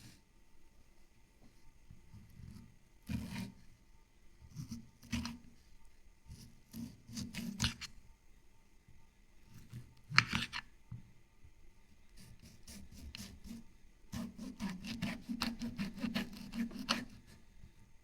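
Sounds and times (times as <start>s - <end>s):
cutting and scraping strokes: 6.3s - 8.0s, 12.2s - 17.4s.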